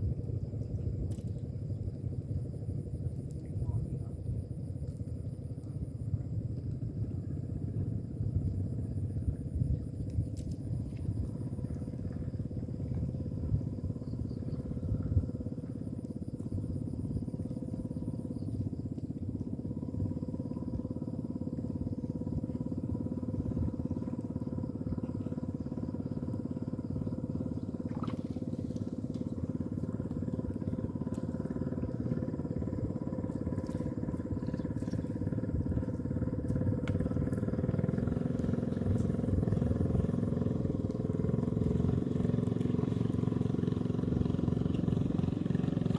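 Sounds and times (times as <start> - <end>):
small engine running: 19.4 - 45.9.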